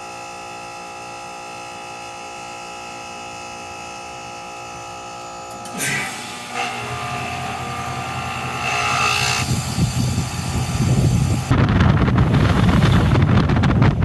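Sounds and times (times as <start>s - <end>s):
heat pump hum: 3.8s - 14.0s
motor whine: 4.2s - 14.0s
rough rumble: 6.6s - 14.0s
wind buffeting microphone: 7.7s - 14.0s.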